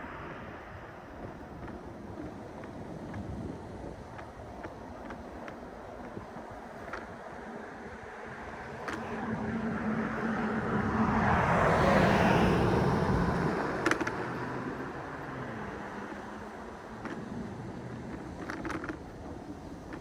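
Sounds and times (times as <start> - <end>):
vehicle passing close by: 8.3 - 18.0.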